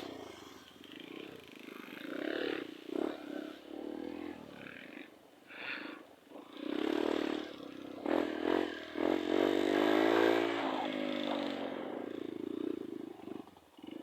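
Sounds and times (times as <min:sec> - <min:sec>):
motorcycle engine revving: 0:00.0 - 0:04.9, 0:05.7 - 0:14.0.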